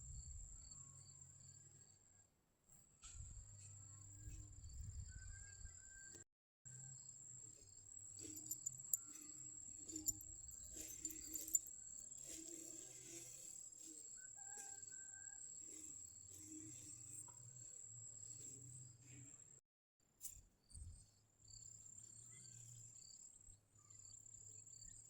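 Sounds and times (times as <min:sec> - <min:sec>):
insects trilling: 0:08.0 - 0:18.5
rustling: 0:08.2 - 0:14.1.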